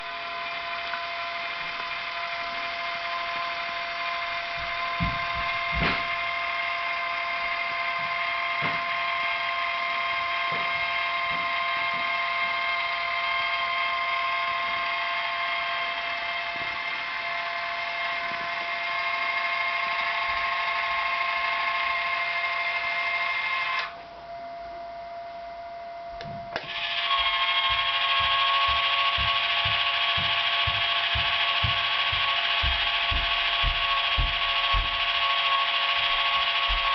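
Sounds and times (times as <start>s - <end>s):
electric drive whining: 0.0s - 36.9s.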